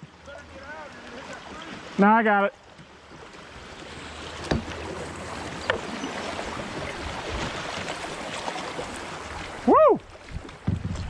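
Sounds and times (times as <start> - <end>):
creek water rushing around hull: 0.0 - 11.0
sharp knocks on kayak: 4.4 - 4.9.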